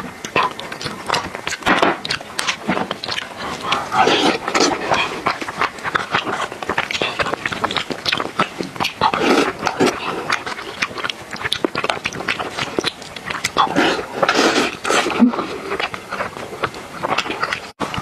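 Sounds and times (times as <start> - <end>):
wet chewing and lip smacking: 0.0 - 18.0.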